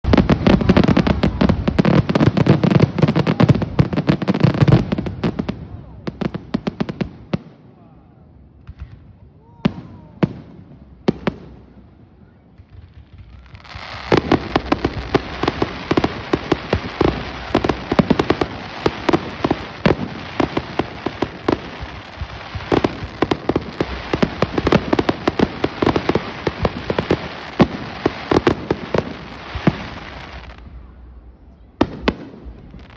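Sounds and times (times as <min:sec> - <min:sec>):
fireworks crackling and banging: 0:00.0 - 0:07.6, 0:08.6 - 0:32.9.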